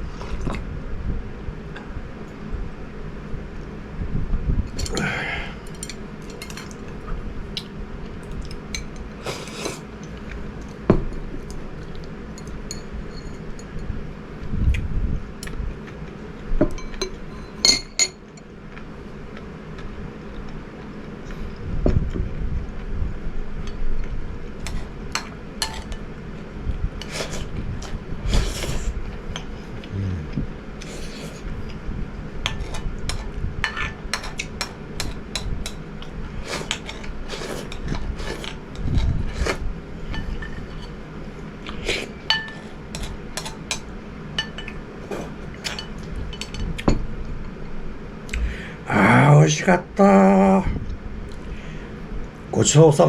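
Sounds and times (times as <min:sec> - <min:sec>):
utensils clinking against a dish: 0:05.7 - 0:06.9, 0:12.3 - 0:13.8, 0:16.7 - 0:18.4, 0:24.7 - 0:26.0, 0:32.5 - 0:35.8, 0:41.8 - 0:46.9.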